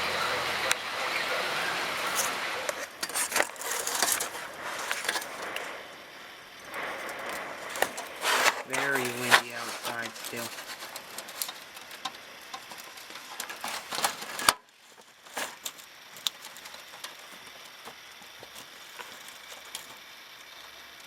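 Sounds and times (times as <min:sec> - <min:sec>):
wind hiss: 0:00.0 - 0:14.5
rain pattering and dripping: 0:04.6 - 0:21.0.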